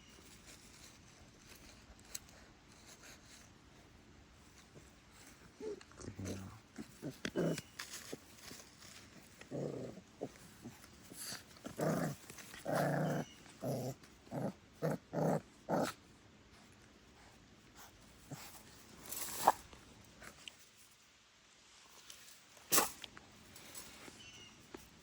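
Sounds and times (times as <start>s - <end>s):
puppies growling: 5.2s - 16.0s.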